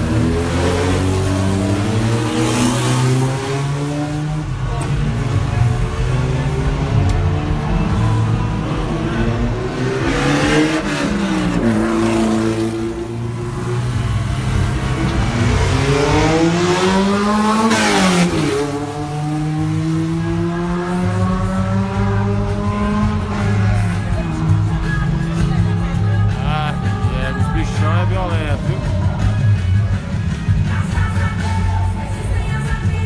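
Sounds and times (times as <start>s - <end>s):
race car engines revving: 0.0s - 33.0s.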